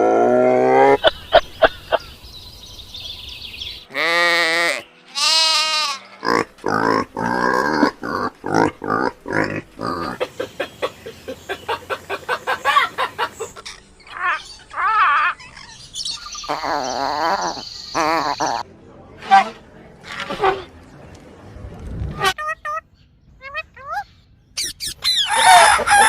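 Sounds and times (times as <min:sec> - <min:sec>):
bleat-like calls: 0:03.9 - 0:06.4.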